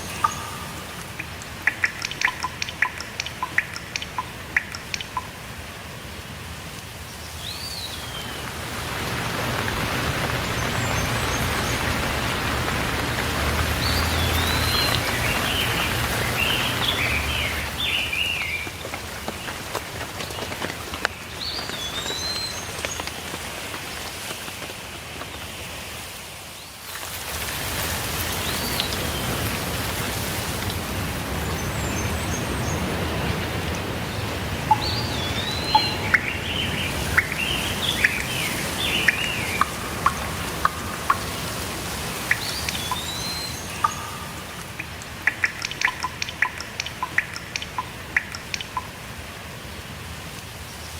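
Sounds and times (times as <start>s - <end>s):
birds chirping and whistling: 0.0s - 5.2s, 13.8s - 18.7s, 34.7s - 48.9s
steady rain: 0.0s - 50.9s.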